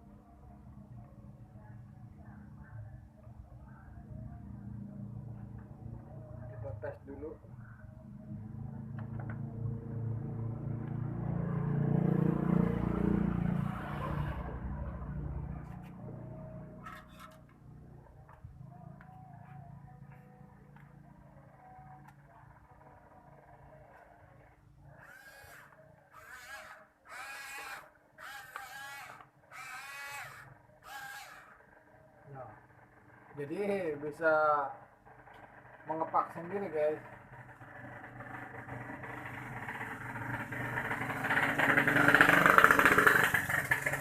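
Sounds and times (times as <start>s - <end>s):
small electric motor running: 25.0s - 31.6s.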